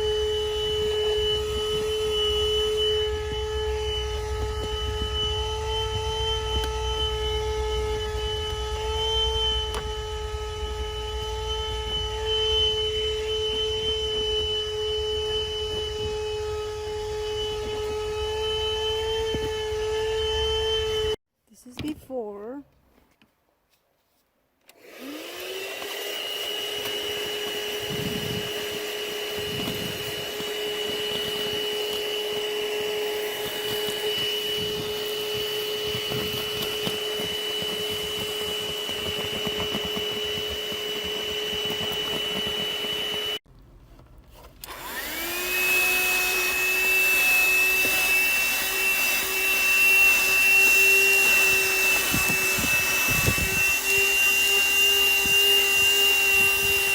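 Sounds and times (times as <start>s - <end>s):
handheld vacuum motor whining: 0.0s - 21.2s, 24.7s - 43.4s, 44.4s - 56.9s.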